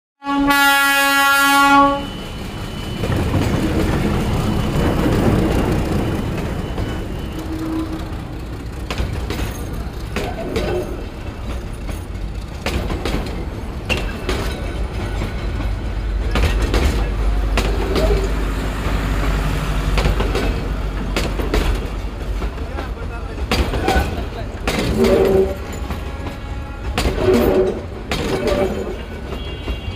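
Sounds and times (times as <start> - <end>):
locomotive horn: 0.2 - 3.1, 7.1 - 8.5, 24.9 - 29.9
train coaches rumbling past: 0.2 - 29.9
wheels clacking over rail joints: 2.9 - 29.9.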